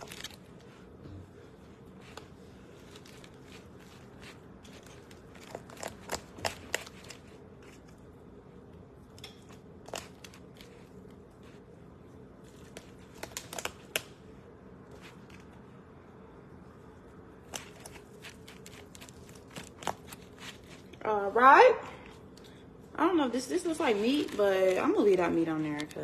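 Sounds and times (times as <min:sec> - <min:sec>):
crinkling: 0:00.0 - 0:08.2, 0:09.2 - 0:14.1, 0:17.4 - 0:21.0, 0:23.4 - 0:26.0
low steady hum: 0:00.0 - 0:26.0.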